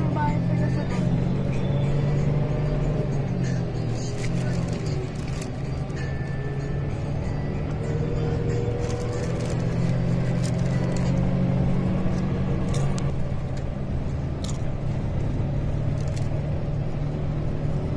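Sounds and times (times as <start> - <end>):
vehicle engine running: 0.0 - 17.9.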